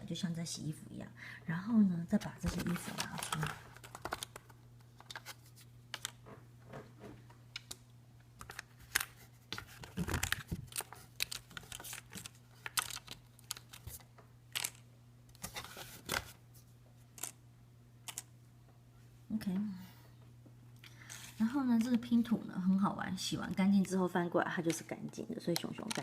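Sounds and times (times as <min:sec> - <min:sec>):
faint steady hum: 0:00.0 - 0:26.0
book pages rustling: 0:02.2 - 0:06.2, 0:08.4 - 0:14.8, 0:15.4 - 0:16.7
puzzle pieces clicking: 0:18.1 - 0:18.3.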